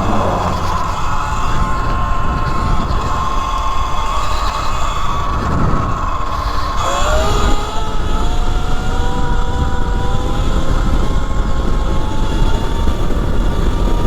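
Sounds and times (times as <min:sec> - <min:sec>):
electric motor whining: 0:00.0 - 0:02.4
wind rumble on microphone: 0:00.0 - 0:06.1.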